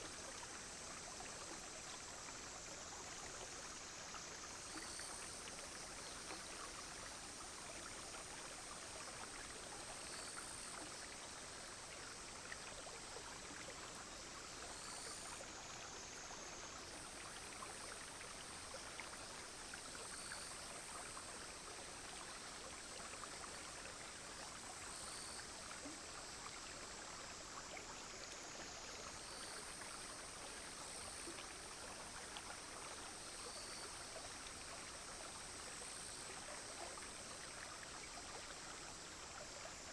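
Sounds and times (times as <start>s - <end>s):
brook flowing: 0.0s - 39.9s
insects droning: 0.0s - 39.9s.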